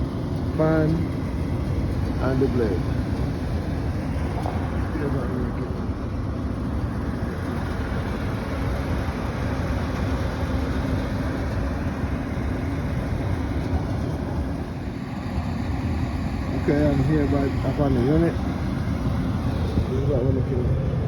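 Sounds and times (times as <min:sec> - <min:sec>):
air conditioning machinery drone: 0:00.0 - 0:21.0
faint constant hum: 0:00.0 - 0:21.0
wind rumble on microphone: 0:00.0 - 0:21.0.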